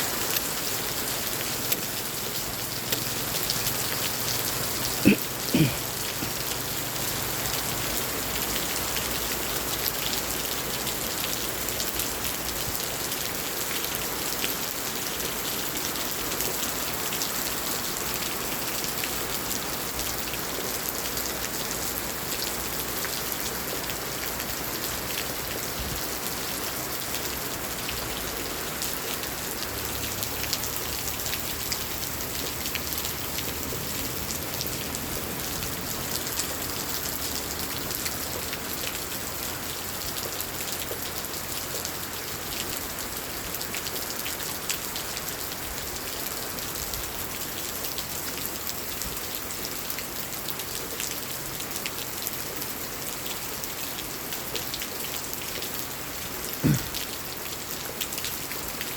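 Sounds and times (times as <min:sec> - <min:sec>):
heavy rain falling: 0:00.0 - 0:58.9
raindrops ticking on hard surfaces: 0:00.0 - 0:58.9.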